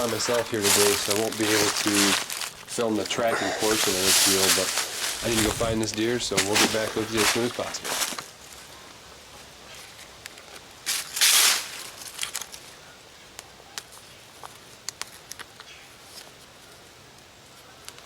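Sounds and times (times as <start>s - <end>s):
rustling and handling noise: 0.0s - 18.0s.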